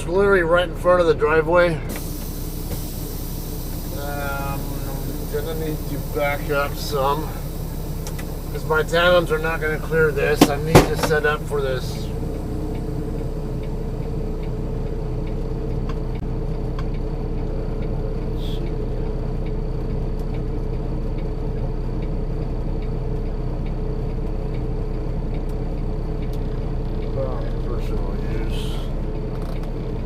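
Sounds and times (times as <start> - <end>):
truck diesel engine running: 0.0 - 30.0.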